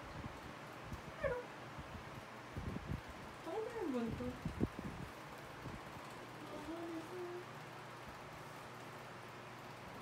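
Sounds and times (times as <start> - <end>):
faint steady hum: 0.0 - 10.0
dog whining: 1.1 - 1.6.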